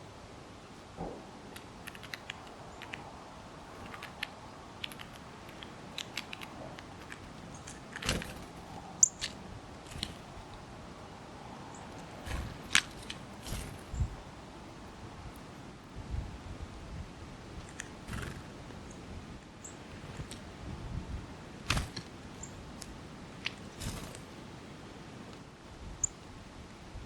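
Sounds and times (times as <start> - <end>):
high falling bird chirp: 1.5 - 15.1, 22.1 - 24.5.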